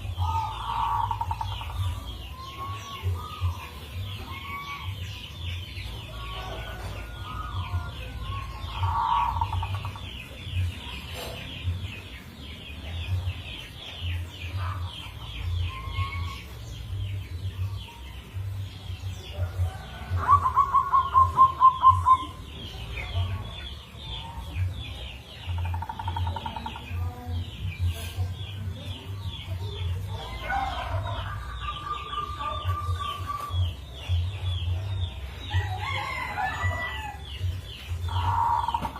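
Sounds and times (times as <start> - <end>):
dove cooing: 19.4 - 22.5.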